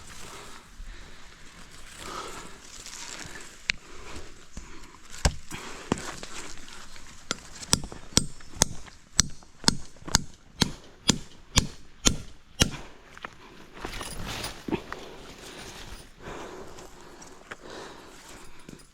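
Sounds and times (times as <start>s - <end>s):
tool chopping strokes: 7.3s - 12.9s.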